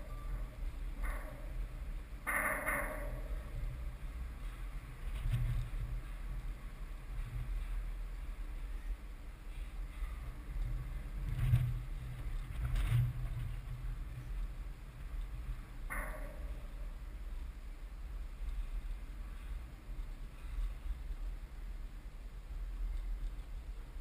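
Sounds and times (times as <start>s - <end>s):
train knocks: 0.0s - 4.5s
freight train wheels rumbling: 0.0s - 24.0s.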